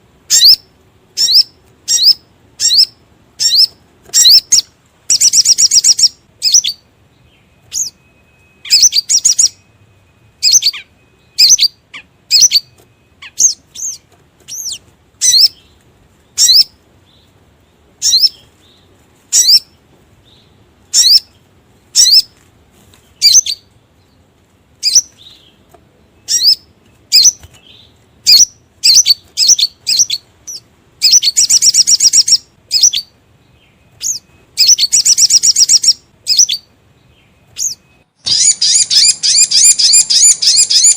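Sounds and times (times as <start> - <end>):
bird rapid trill: 0.3 - 6.9, 7.6 - 15.7, 16.3 - 16.8, 18.0 - 18.5, 19.3 - 19.8, 20.9 - 22.4, 23.2 - 23.8, 24.8 - 25.6, 26.2 - 33.2, 34.0 - 36.7, 37.6 - 40.9
bird high sharp chirps: 0.3 - 17.2, 18.0 - 22.4, 23.1 - 23.8, 24.8 - 25.6, 26.2 - 40.9.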